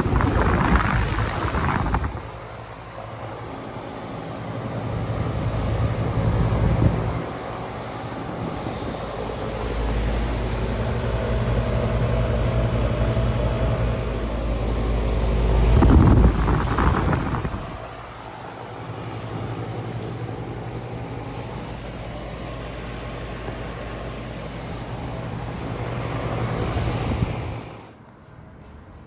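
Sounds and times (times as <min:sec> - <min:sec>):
deep low rumble: 0:00.0 - 0:02.8, 0:09.4 - 0:18.0
compressor hum: 0:00.0 - 0:28.0
condenser fan whirring: 0:00.0 - 0:28.2.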